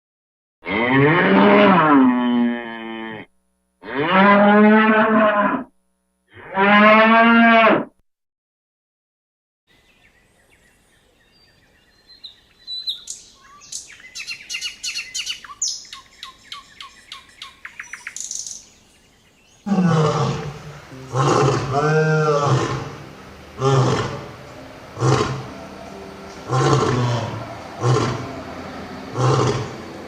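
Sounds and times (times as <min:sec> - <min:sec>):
cow mooing: 0:00.6 - 0:05.7, 0:06.3 - 0:07.9, 0:19.7 - 0:30.0
deep animal roar: 0:00.6 - 0:05.7, 0:19.6 - 0:30.0
songbird singing: 0:09.7 - 0:30.0.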